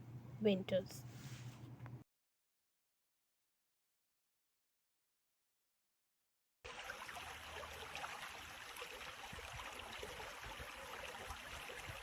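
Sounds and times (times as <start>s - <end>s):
faint rush of water: 6.7s - 12.0s.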